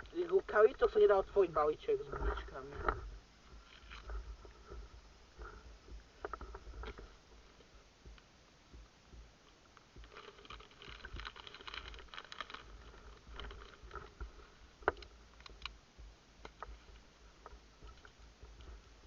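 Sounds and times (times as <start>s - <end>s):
plastic packet crinkling: 10.0s - 14.1s
small clicks: 14.8s - 15.8s.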